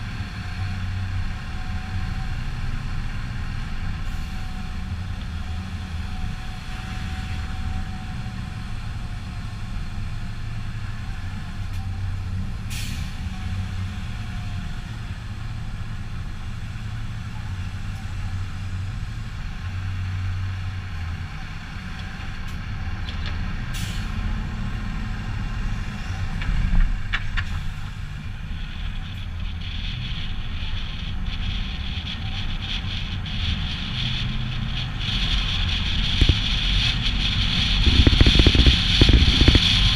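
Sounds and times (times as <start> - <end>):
diesel truck engine running: 0.0 - 39.9
brake air hiss: 12.7 - 13.4, 23.7 - 24.2.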